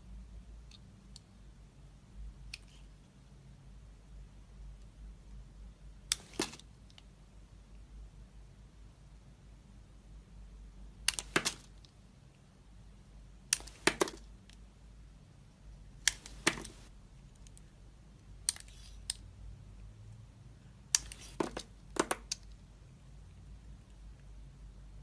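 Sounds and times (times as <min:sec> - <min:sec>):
knife carving dry soap: 0:18.4 - 0:19.2, 0:20.9 - 0:22.5.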